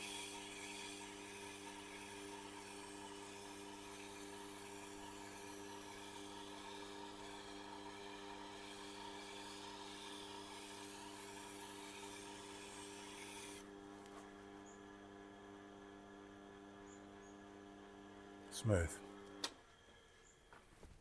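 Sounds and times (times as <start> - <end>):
knife rubbing on turning wheel: 0.0 - 4.3.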